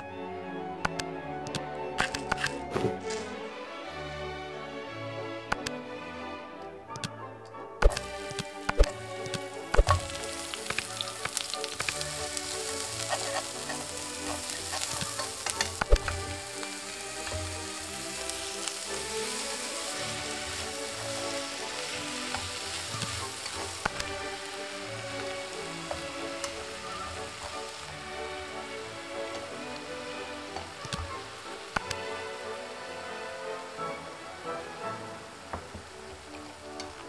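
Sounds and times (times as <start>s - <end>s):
food sizzling in hot oil: 7.8s - 37.0s.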